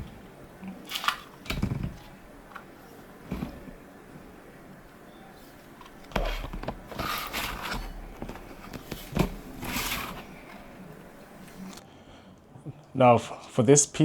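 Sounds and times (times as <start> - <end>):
plastic parts scraping and rustling: 0.0 - 3.8, 5.4 - 10.9
plastic parts knocking: 0.9 - 3.8, 5.8 - 10.2.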